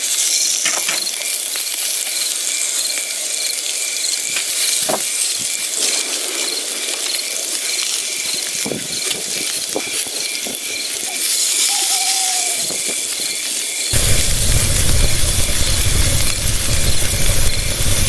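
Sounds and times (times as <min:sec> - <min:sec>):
insects chirping: 0:00.0 - 0:17.8
falling whistled call: 0:11.0 - 0:13.0.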